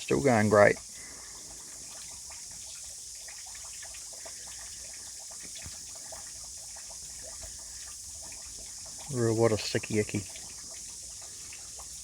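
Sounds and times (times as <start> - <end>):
small water drips: 0.0 - 12.0.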